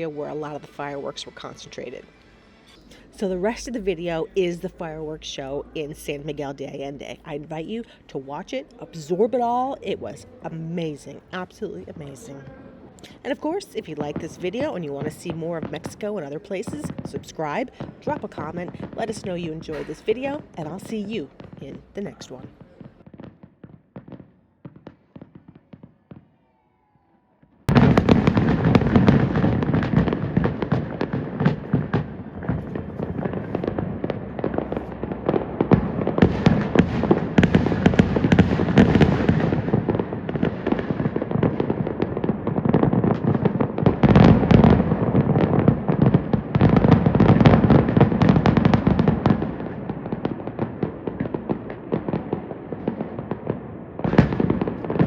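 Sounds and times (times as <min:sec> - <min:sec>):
fireworks bangs and crackles: 0:00.0 - 0:12.4, 0:13.0 - 0:27.0, 0:27.6 - 0:55.0
faint fireworks pops: 0:10.8 - 0:26.6, 0:27.6 - 0:55.0.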